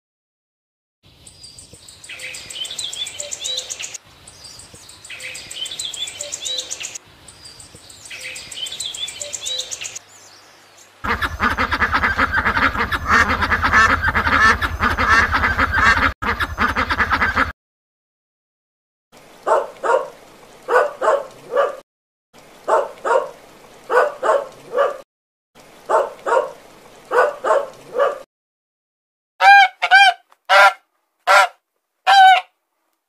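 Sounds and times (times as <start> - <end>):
ducklings quacking and peeping: 11.0 - 17.5.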